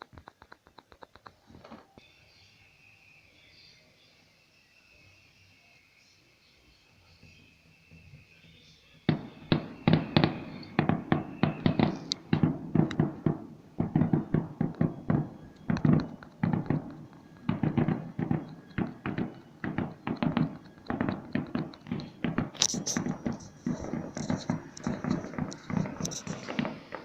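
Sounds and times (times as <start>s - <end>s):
fireworks bangs and crackles: 9.1s - 27.0s.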